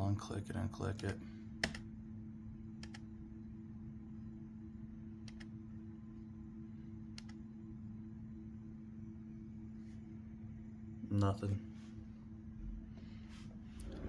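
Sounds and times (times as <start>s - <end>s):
low electrical hum: 0.0s - 14.0s
computer mouse clicks: 1.0s - 1.8s, 2.8s - 3.0s, 5.2s - 5.5s, 7.2s - 7.4s.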